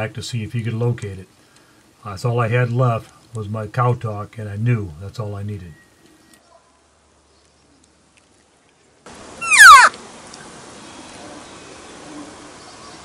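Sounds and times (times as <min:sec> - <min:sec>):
faint background hiss: 0:00.0 - 0:13.0
elk call mew: 0:09.4 - 0:10.0.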